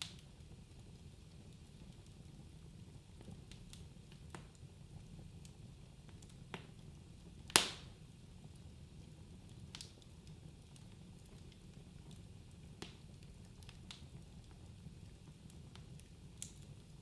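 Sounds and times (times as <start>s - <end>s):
fire crackling: 0.0s - 17.0s
loud sharp pop: 7.6s - 7.9s.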